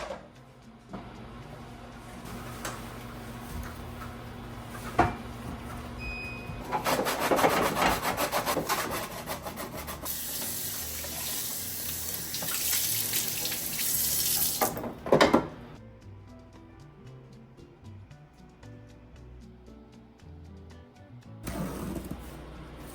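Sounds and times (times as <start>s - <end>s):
scrubbing at a sink: 6.7s - 14.8s.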